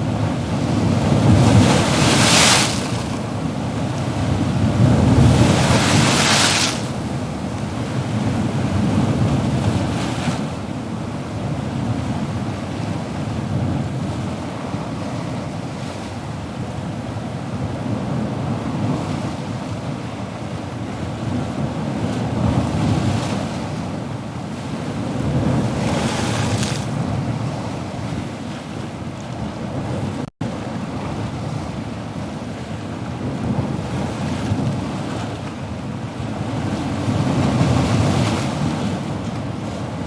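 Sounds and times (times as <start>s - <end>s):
ocean waves rumbling: 0.0s - 16.0s, 24.6s - 40.0s.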